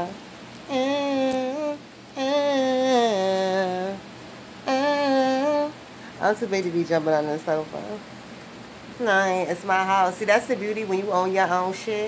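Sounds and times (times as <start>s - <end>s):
woman singing long wordless notes: 0.0s - 6.0s.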